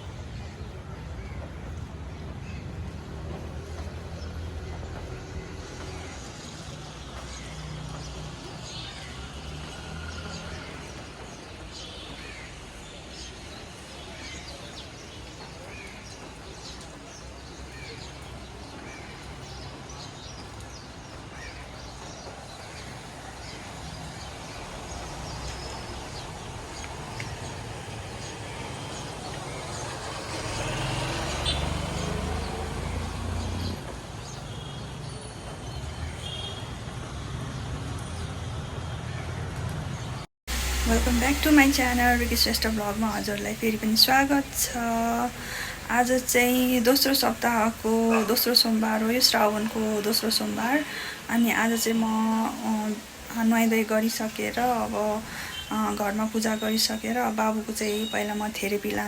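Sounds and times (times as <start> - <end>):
birds chirping: 0.0 - 59.0
vehicle engine rumbling by: 24.4 - 34.6
outdoor background hiss: 39.8 - 59.0.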